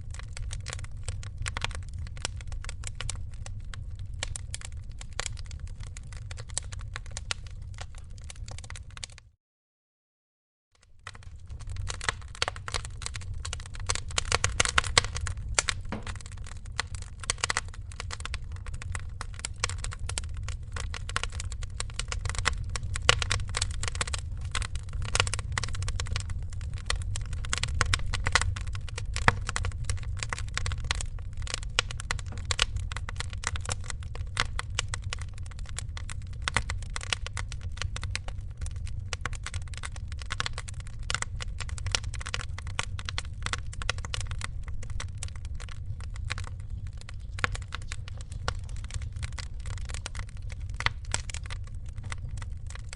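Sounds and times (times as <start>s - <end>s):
wood fire crackling: 0.0s - 9.3s, 10.8s - 52.9s.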